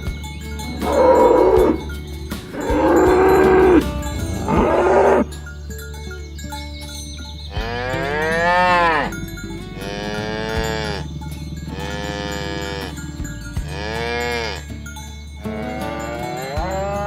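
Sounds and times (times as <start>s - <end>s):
cows mooing: 0.8s - 1.9s, 2.6s - 5.4s, 7.5s - 14.8s, 15.4s - 17.0s.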